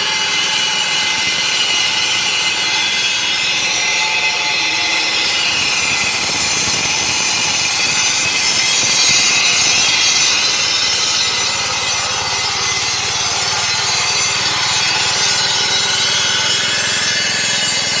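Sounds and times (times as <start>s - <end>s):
garage door opener rasping: 5.1s - 18.0s.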